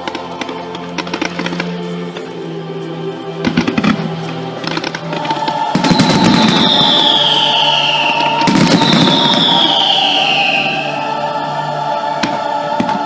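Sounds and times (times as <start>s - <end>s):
fireworks crackling: 0.0s - 2.4s, 3.4s - 11.4s
fireworks show music: 0.0s - 13.0s
falling firework whistles: 5.6s - 11.4s
firework bang: 5.7s - 11.0s.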